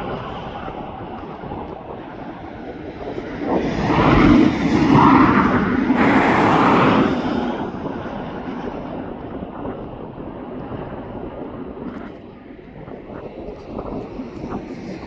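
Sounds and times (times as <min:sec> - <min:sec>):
jet aircraft passing: 0:00.6 - 0:11.6.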